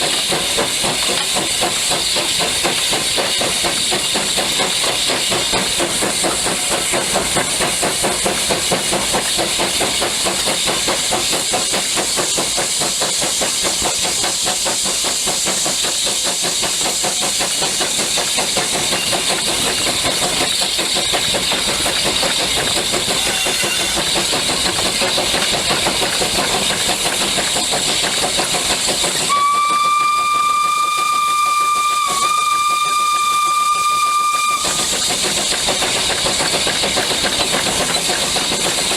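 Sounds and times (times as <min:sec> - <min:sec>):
steam locomotive exhaust beat: 0:00.0 - 0:38.9
steam whistle blowing: 0:23.2 - 0:24.0, 0:29.3 - 0:35.0.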